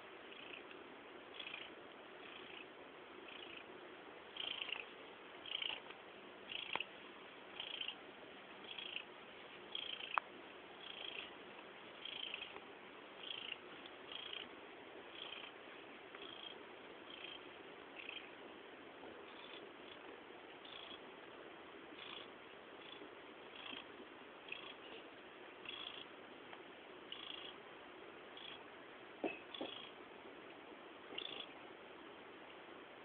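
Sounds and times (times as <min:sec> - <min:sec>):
cat purring loudly: 0:00.3 - 0:00.7, 0:01.3 - 0:03.7, 0:04.3 - 0:05.8, 0:06.5 - 0:06.9, 0:07.6 - 0:08.0, 0:08.6 - 0:09.1, 0:09.7 - 0:10.2, 0:10.8 - 0:11.3, 0:12.0 - 0:12.6, 0:13.2 - 0:14.5, 0:15.1 - 0:18.4, 0:21.9 - 0:24.9, 0:25.6 - 0:26.1.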